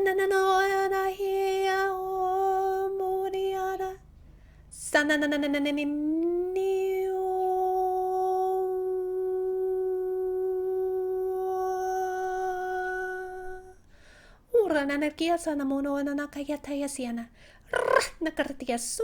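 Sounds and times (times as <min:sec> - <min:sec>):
woman humming a sustained tone: 0:06.0 - 0:13.8.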